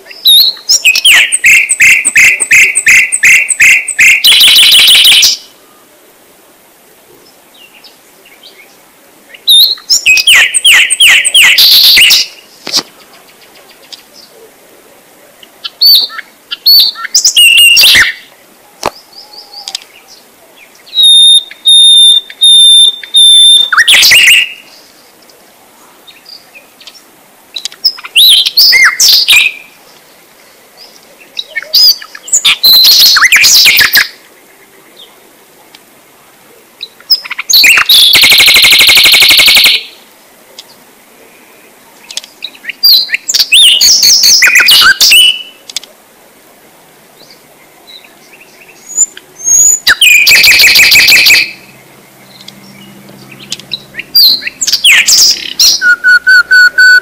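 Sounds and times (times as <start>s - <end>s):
bird chirping and trilling: 0.0s - 5.5s, 9.3s - 12.6s, 15.6s - 18.3s, 19.0s - 24.9s, 27.6s - 29.7s, 30.8s - 34.2s, 36.8s - 40.0s, 42.0s - 45.6s, 47.2s - 57.0s.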